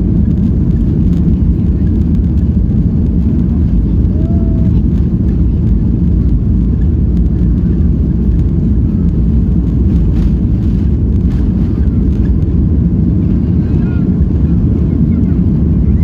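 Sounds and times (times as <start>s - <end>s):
jet engines rumbling in cabin: 0.0s - 16.0s.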